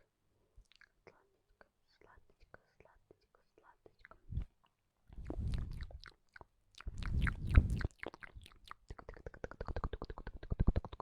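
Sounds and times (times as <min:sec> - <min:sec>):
rapid mouth clicks: 0:05.1 - 0:11.0
wet breathy mouth noise: 0:05.1 - 0:11.0.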